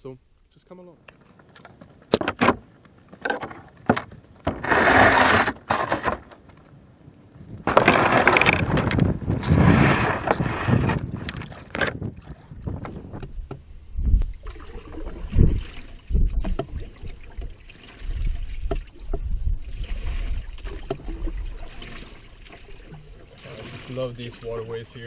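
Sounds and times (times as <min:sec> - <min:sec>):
rushing water noise: 0:07.6 - 0:13.0.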